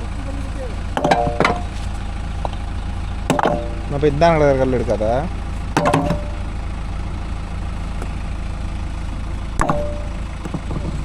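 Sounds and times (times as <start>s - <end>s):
diesel engine idling: 0.0s - 11.0s
sharp metallic clank: 1.0s - 1.7s, 3.3s - 4.0s, 5.8s - 6.5s, 9.6s - 10.2s.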